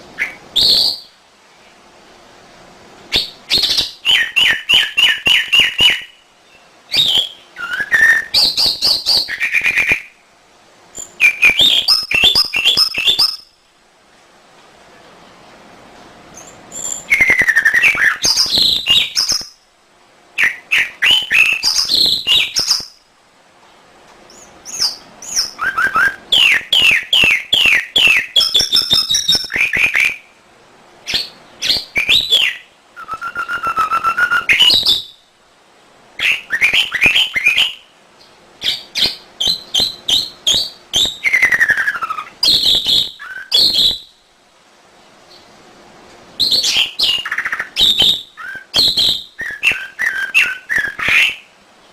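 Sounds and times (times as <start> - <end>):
canary singing: 0.1 - 1.2, 3.1 - 10.2, 10.9 - 13.6, 16.3 - 19.7, 20.4 - 23.1, 24.3 - 30.4, 31.0 - 35.2, 36.2 - 44.2, 46.4 - 51.5.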